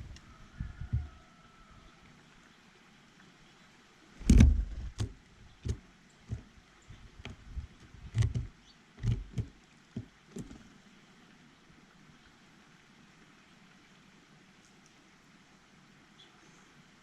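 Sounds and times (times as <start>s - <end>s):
close knocks and thumps: 4.2s - 10.7s.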